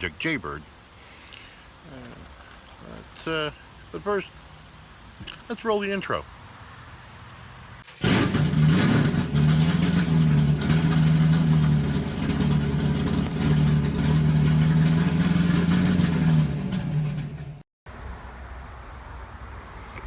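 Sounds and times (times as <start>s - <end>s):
car engine revving: 7.8s - 17.6s.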